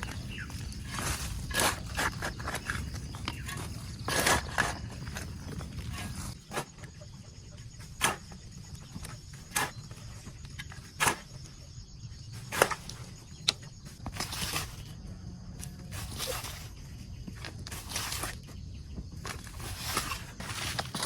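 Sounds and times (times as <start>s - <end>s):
rustling: 12.4s - 15.0s, 15.7s - 18.6s, 19.2s - 21.0s.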